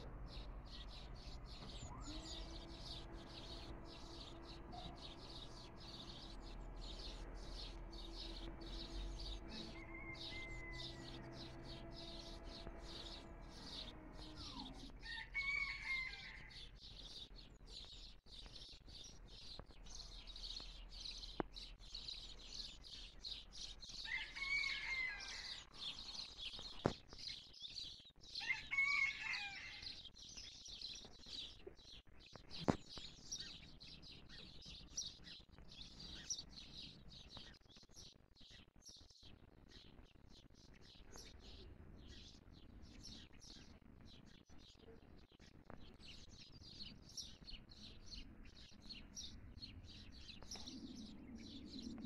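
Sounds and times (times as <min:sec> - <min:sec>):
loud bird calls: 0:00.0 - 0:27.4
birds chirping: 0:00.0 - 0:52.0.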